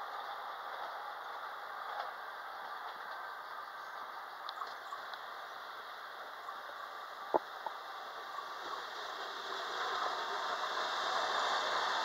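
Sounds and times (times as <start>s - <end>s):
approaching train hiss: 0.0s - 12.0s.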